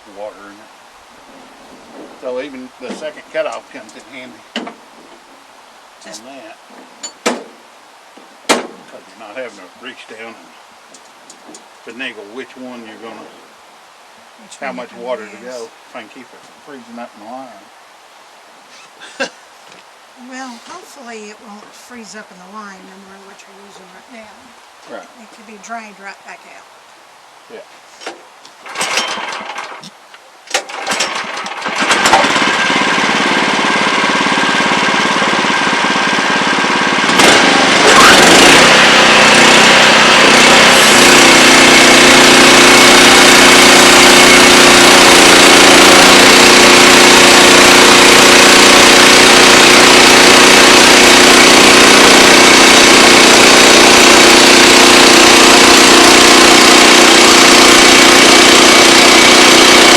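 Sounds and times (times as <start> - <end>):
sawmill engine starting up: 28.6 - 29.8, 30.5 - 59.9.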